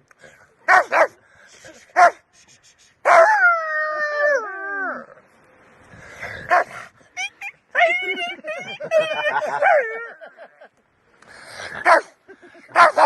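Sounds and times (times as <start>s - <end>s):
dog barking: 0.7s - 1.2s, 2.0s - 2.2s, 11.9s - 12.1s, 12.8s - 13.0s.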